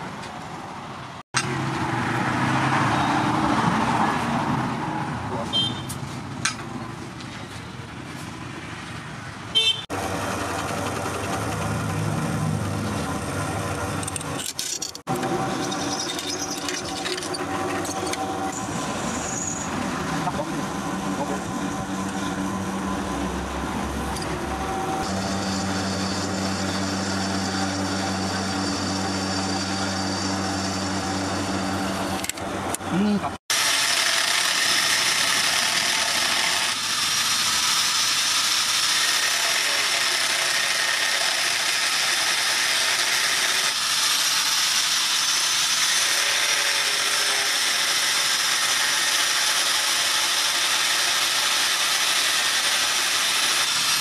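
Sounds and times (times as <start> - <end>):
angle grinder cutting steel: 14.0 - 32.8, 33.5 - 54.0
drill press boring through steel: 33.5 - 54.0.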